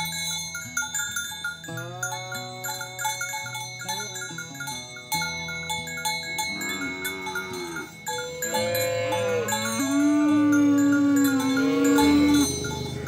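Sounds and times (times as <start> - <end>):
cattle mooing: 6.4 - 13.0.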